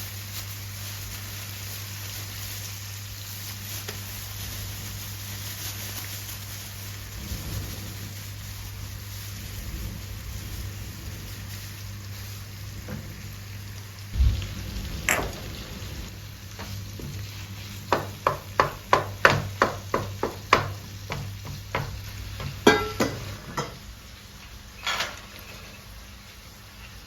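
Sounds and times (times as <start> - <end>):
low steady hum: 6.7 - 20.7
sharp utensil knocks: 18.0 - 23.8.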